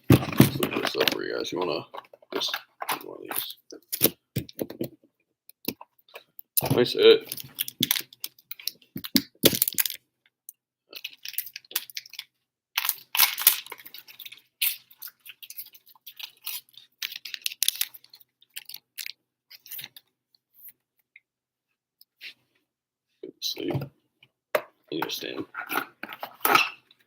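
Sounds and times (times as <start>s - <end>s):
small objects clicking and tapping: 0.1s - 20.1s.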